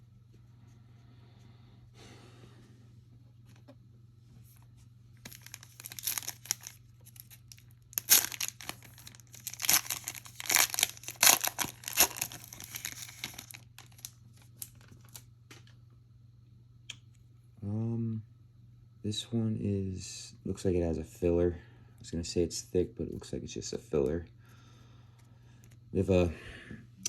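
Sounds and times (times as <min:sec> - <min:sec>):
wrapper tearing and crinkling: 0:05.3 - 0:15.2.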